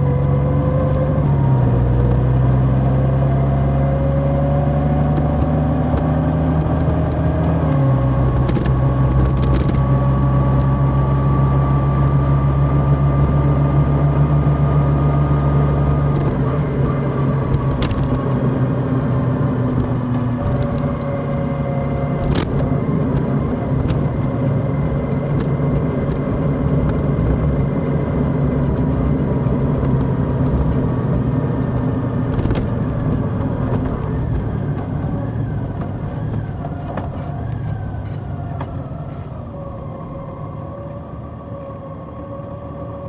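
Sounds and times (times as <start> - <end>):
motorcycle engine running: 14.8 - 40.2
rushing wind: 15.9 - 40.8.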